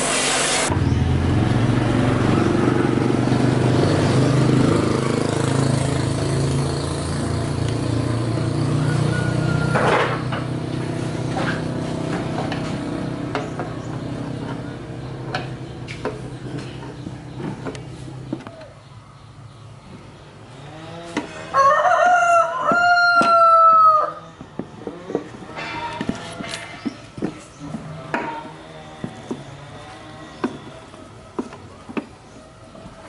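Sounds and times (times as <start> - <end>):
engine running: 0.0 - 21.5.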